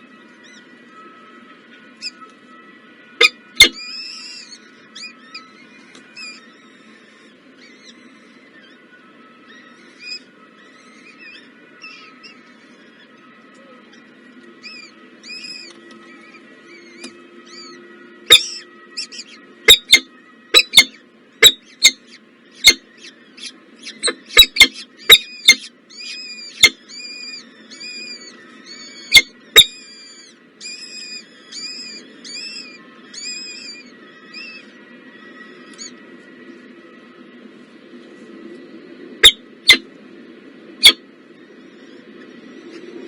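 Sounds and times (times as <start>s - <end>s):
nestlings chirping: 3.2s - 8.8s, 9.4s - 34.8s.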